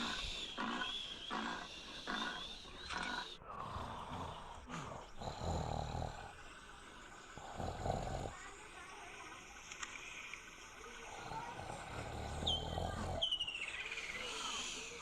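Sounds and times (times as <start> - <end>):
big cat calling: 0.0 - 3.4.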